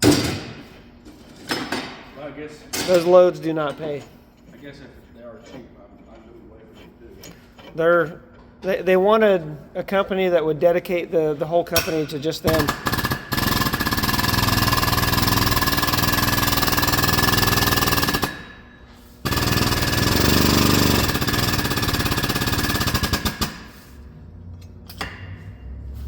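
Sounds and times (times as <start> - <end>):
pneumatic air tool hammering: 11.8 - 24.1, 24.9 - 25.5.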